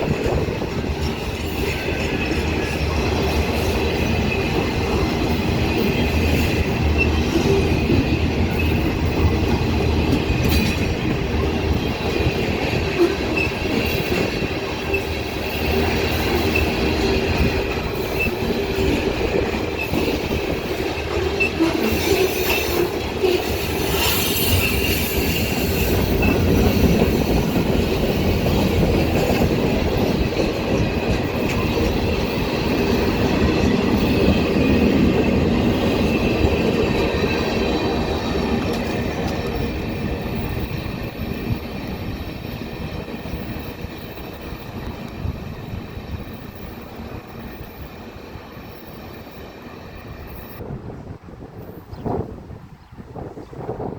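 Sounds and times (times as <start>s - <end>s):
rumble of train wheels: 0.0s - 53.9s
high wheel squeal: 12.8s - 28.6s.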